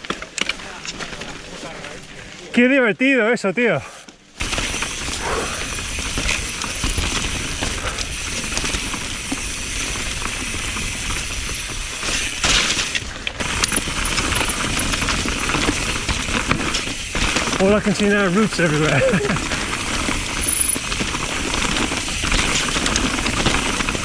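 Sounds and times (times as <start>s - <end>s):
bike clacking and rattling: 4.4s - 24.0s
tyre and wind noise: 4.4s - 24.0s.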